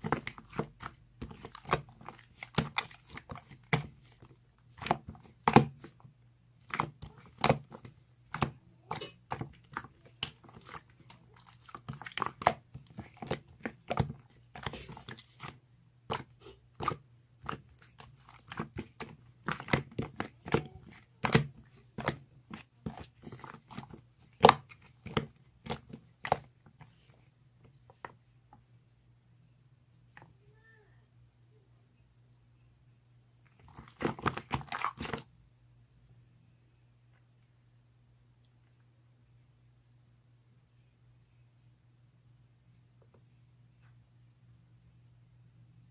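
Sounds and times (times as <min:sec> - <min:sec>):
slime squished by hand: 0:00.0 - 0:06.0, 0:06.6 - 0:27.1, 0:33.5 - 0:35.3.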